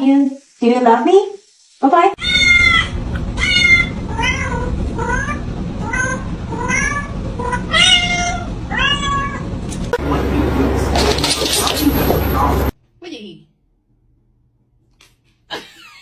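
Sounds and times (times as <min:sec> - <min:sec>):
cat meowing: 0:02.2 - 0:10.0
steady low hum: 0:02.2 - 0:12.8.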